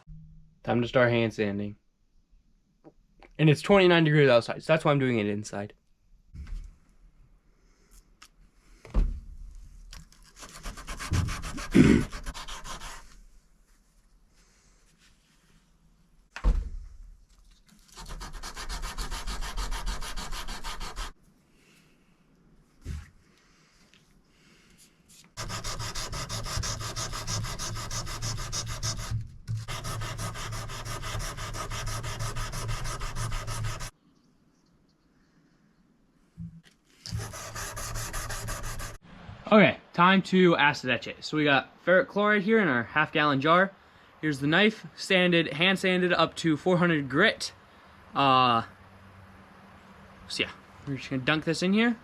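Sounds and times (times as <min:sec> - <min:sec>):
thump: 0:06.4 - 0:06.7, 0:08.8 - 0:09.4, 0:16.3 - 0:17.0
hand sanding steel blade: 0:10.2 - 0:13.2, 0:17.9 - 0:21.2, 0:25.4 - 0:33.9, 0:37.1 - 0:39.0.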